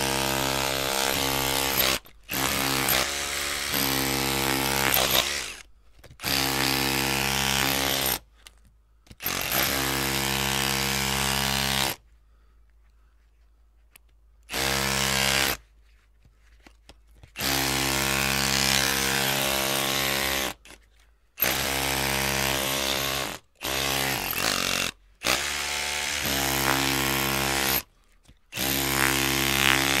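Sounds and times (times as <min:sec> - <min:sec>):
electric drill motor bursts: 0:00.0 - 0:05.6, 0:21.4 - 0:27.9.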